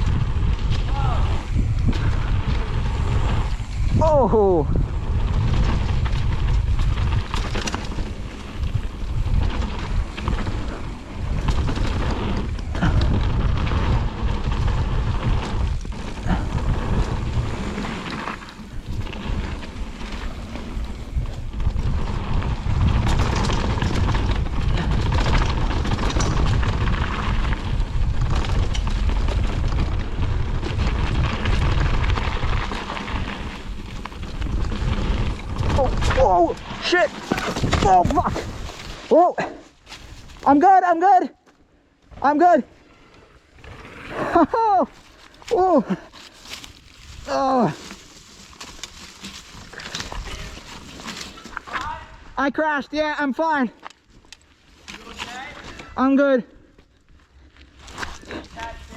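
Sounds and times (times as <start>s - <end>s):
wind rumbling on microphone: 0.0s - 39.1s
bike rattling and knocking: 0.0s - 40.6s, 44.7s - 52.1s
tyres on dirt: 0.0s - 40.8s, 41.4s - 52.6s, 53.2s - 58.9s.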